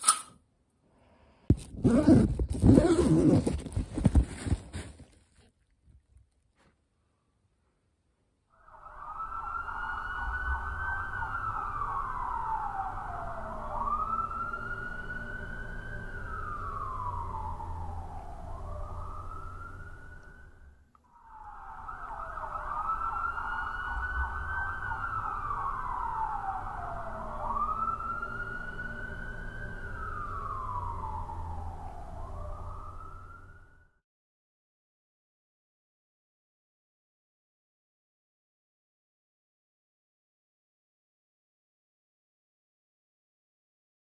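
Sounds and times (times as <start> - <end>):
siren wailing: 8.5 - 34.0.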